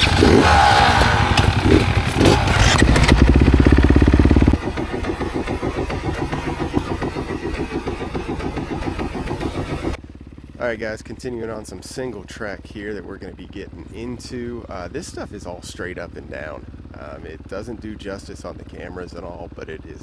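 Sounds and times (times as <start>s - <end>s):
dirt bike engine revving: 0.0s - 10.4s.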